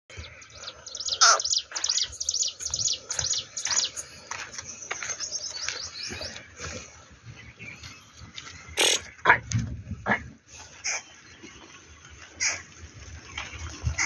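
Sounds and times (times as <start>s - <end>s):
bird chirping: 0.2s - 9.2s.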